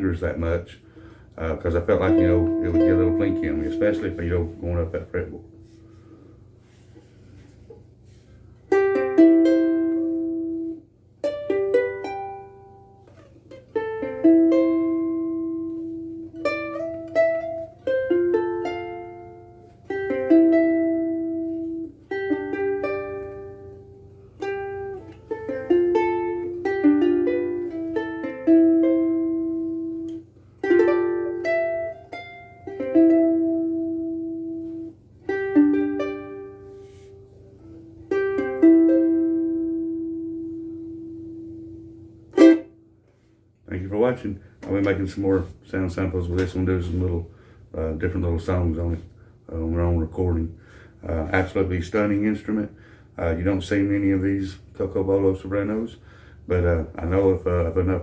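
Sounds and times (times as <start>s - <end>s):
ukulele playing chords and melody: 1.9s - 5.8s, 8.1s - 43.3s.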